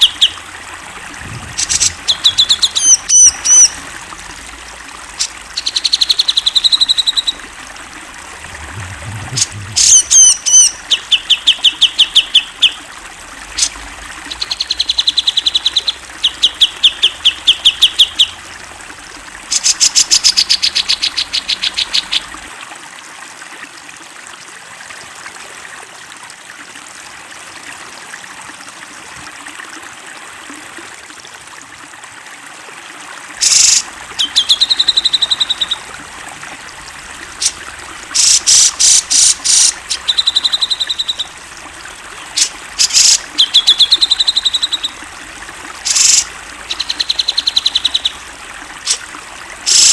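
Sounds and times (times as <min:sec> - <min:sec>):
bulbul singing rapid notes: 0:00.0 - 0:04.0, 0:05.1 - 0:07.6, 0:08.2 - 0:12.8, 0:33.4 - 0:49.9.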